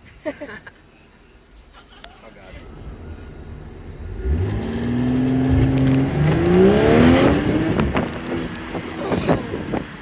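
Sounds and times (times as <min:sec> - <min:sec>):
car engine accelerating hard: 0:02.5 - 0:10.0.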